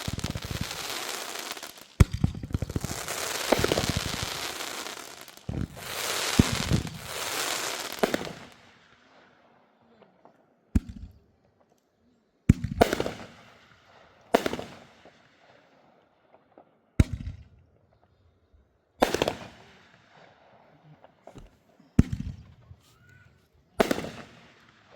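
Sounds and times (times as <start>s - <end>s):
loud firework bangs: 0.0s - 8.6s, 19.0s - 19.9s, 23.8s - 24.9s
fireworks crackling and hissing: 0.0s - 9.1s, 12.8s - 15.8s, 19.0s - 20.2s, 21.1s - 24.9s.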